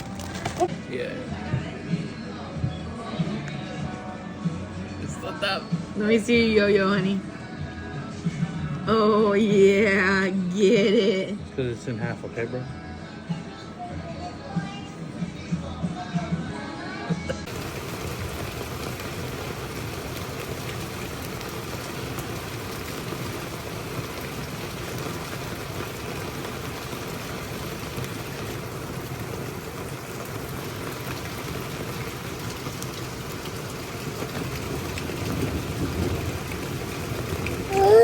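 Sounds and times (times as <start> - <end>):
steady rainfall: 17.4 - 38.0
thunder rumble: 17.4 - 38.0.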